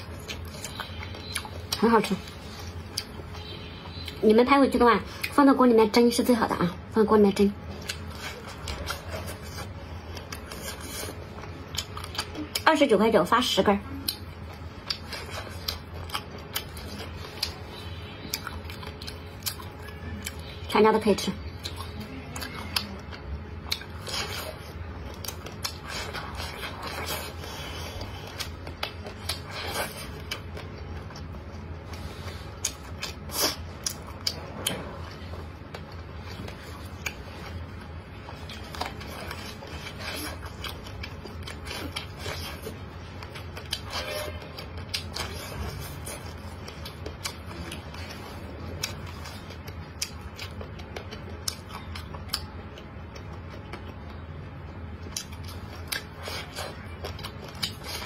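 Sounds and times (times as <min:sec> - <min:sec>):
biting and chewing corn: 0:21.5 - 0:54.2, 0:55.0 - 0:58.0.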